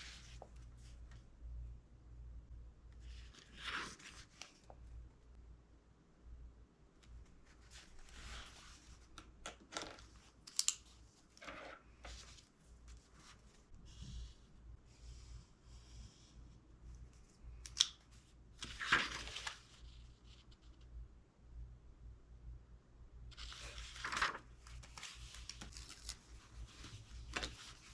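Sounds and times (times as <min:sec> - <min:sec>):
low steady hum: 0:00.0 - 0:27.9
book pages rustling: 0:03.0 - 0:04.8, 0:07.2 - 0:13.7, 0:17.2 - 0:20.4, 0:23.4 - 0:27.9.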